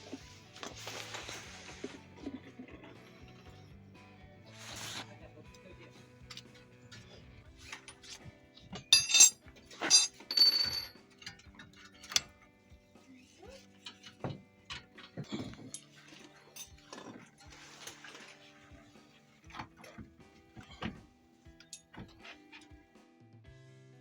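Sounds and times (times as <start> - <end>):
background music: 0.0 - 24.0
metallic clinks of tools: 7.7 - 12.5, 13.7 - 17.3.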